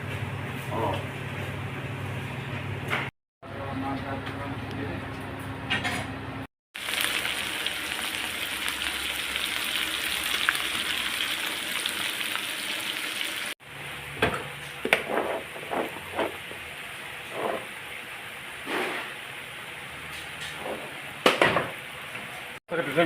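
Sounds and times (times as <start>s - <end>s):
meat sizzling: 6.8s - 13.6s.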